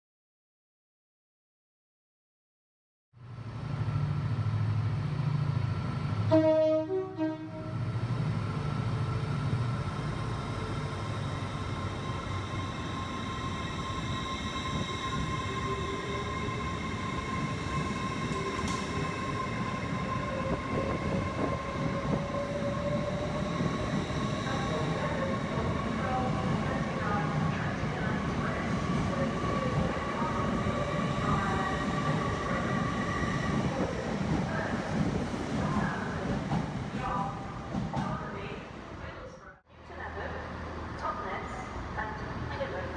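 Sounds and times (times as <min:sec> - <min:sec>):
electric train whine and rolling: 0:03.2 - 0:38.9
train horn: 0:06.3 - 0:07.8.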